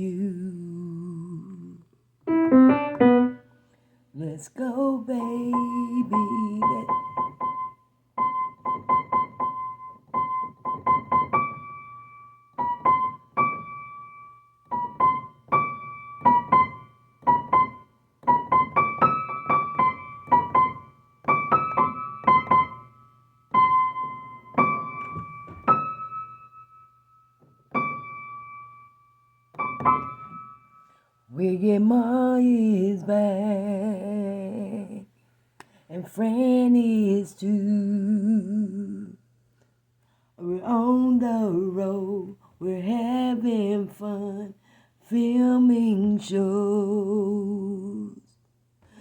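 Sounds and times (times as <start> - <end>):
keyboard music: 2.3 - 3.5, 6.1 - 30.8.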